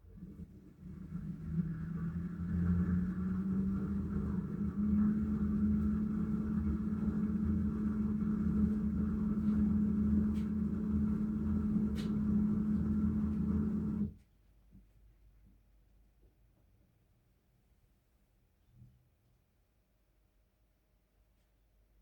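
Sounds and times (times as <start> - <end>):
washing machine spinning: 0.0 - 14.2.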